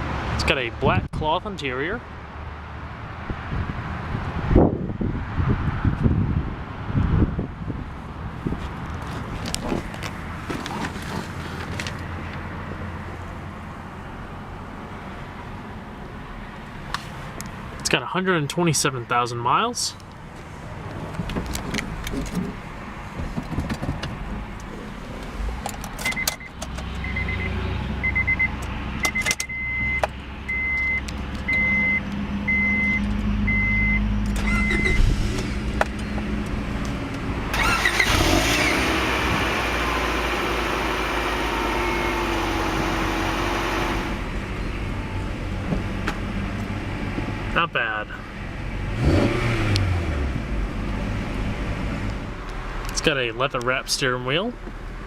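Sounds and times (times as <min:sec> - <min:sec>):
car engine starting: 0:20.4 - 0:45.0, 0:48.8 - 0:53.2
key and ignition clicks: 0:25.7 - 0:26.7.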